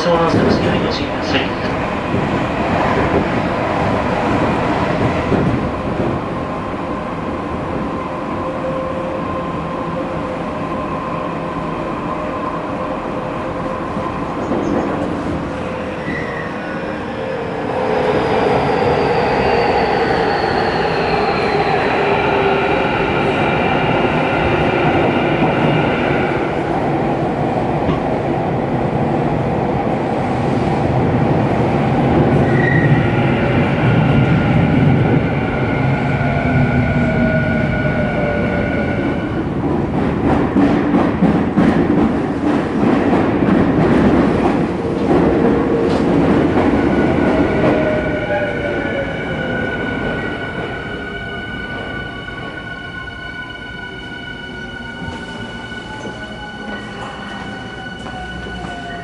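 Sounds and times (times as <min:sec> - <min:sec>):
train wheels on rails: 0:30.1 - 0:51.0, 0:54.9 - 0:59.0.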